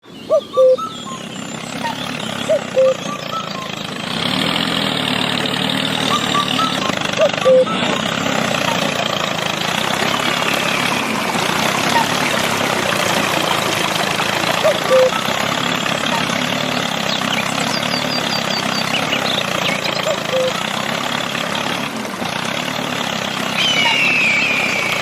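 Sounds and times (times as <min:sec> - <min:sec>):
small engine idling: 0:00.0 - 0:25.0
short high chirps: 0:00.3 - 0:03.8, 0:06.0 - 0:09.0, 0:14.6 - 0:15.4, 0:17.4 - 0:20.8, 0:23.6 - 0:25.0.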